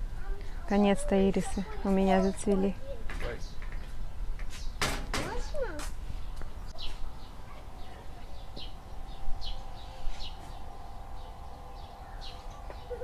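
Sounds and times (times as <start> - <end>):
small birds chirping: 0.2 - 13.0
faint steady hum: 6.4 - 13.0
low rumble: 7.0 - 13.0.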